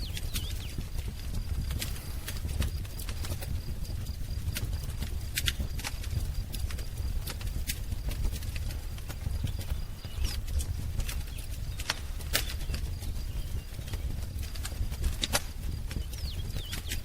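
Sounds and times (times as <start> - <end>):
faint bird chirps: 0.0 - 2.4, 9.2 - 14.4, 15.9 - 17.0
wood fire crackling: 0.0 - 17.0.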